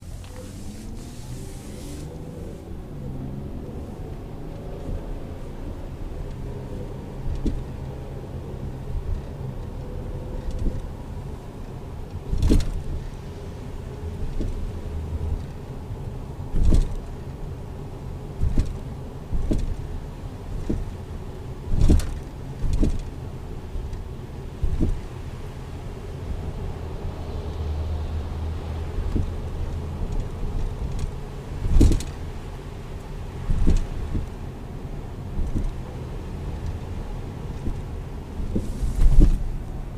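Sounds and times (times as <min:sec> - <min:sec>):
car engine hum: 0:00.0 - 0:39.9
knocking clunks from car rear: 0:07.3 - 0:07.7, 0:16.5 - 0:17.0, 0:18.4 - 0:19.8, 0:20.5 - 0:20.9, 0:21.7 - 0:23.1, 0:24.6 - 0:25.1, 0:29.0 - 0:29.4, 0:31.0 - 0:32.2, 0:33.5 - 0:34.4, 0:35.4 - 0:35.9, 0:37.6 - 0:39.5.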